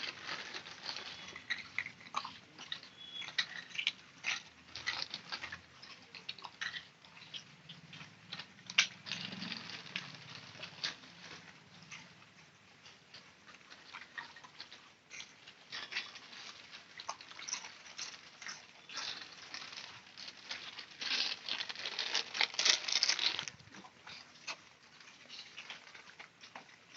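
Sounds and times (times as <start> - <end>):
dogs scuffling: 15.6 - 23.7.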